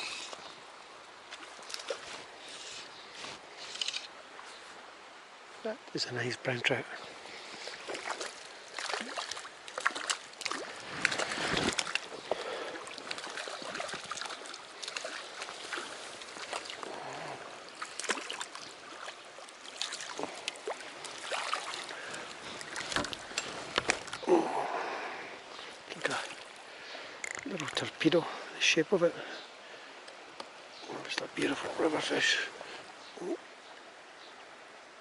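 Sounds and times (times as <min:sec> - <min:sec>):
stream running over stones: 0:00.0 - 0:35.0
water splashing: 0:07.5 - 0:24.8, 0:25.7 - 0:28.0.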